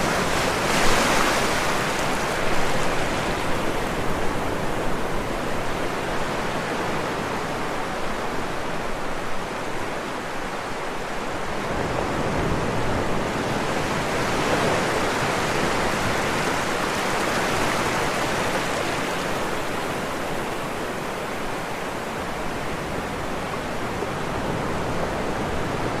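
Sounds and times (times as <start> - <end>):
floodwater rushing: 0.0 - 6.3, 14.1 - 26.0.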